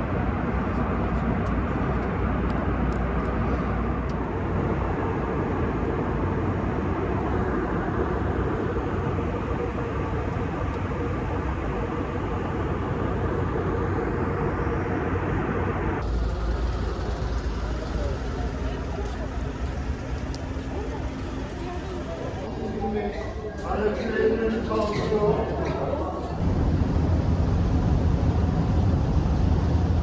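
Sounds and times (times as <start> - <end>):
vehicle rumble from inside: 14.4 - 22.0.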